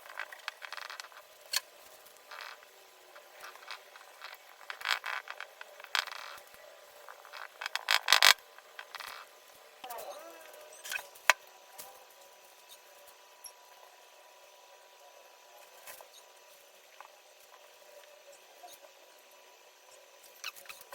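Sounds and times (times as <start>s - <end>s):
faint room noise: 0.0s - 20.9s.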